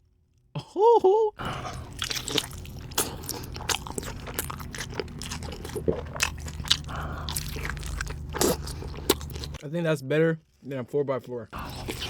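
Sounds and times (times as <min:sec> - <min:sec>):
crisp crunches: 0:01.4 - 0:09.6
person chewing a burger: 0:01.4 - 0:09.6, 0:11.6 - 0:12.0.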